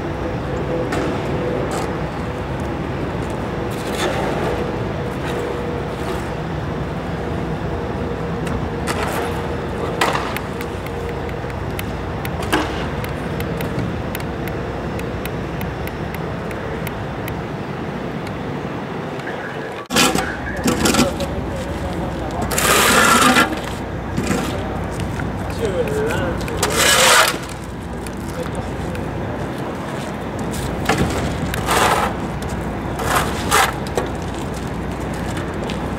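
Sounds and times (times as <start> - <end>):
faint constant hum: 0.0 - 35.9
vehicle and road noise: 0.0 - 35.9.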